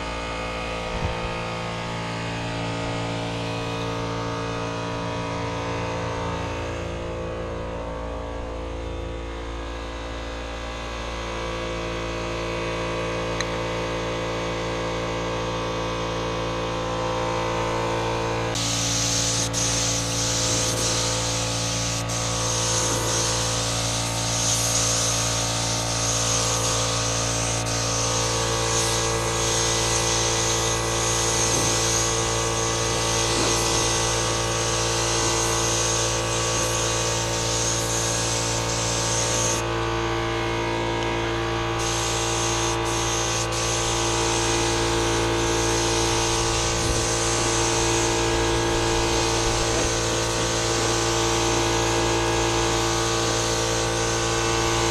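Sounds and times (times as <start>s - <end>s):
steady mechanical hum: 0.0s - 54.9s
spray gun hissing: 18.5s - 39.7s, 41.7s - 54.9s.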